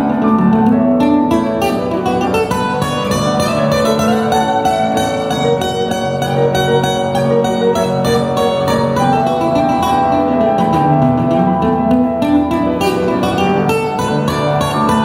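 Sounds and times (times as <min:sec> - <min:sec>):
plucked string instruments: 0:00.0 - 0:15.0.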